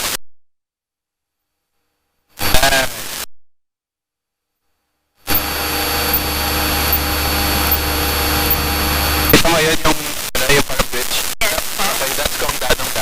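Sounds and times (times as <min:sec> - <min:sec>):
constant hum: 0:05.2 - 0:10.2.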